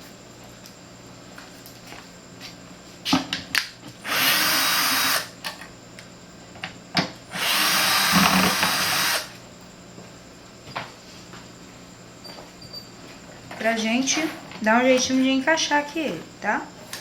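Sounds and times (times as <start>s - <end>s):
power drill running: 4.0s - 5.4s, 7.3s - 9.4s.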